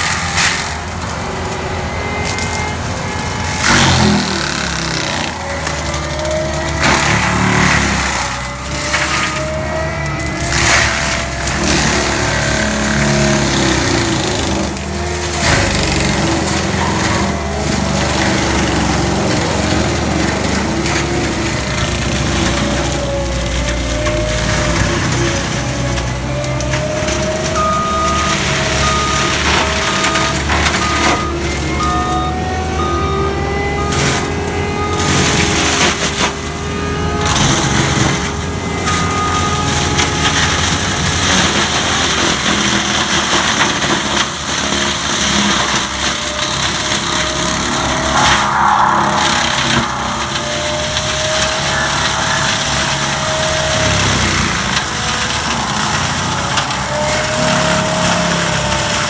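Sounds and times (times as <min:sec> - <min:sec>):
mulching machine engine din: 0:00.0 - 0:59.0
high beep: 0:45.4 - 0:54.0.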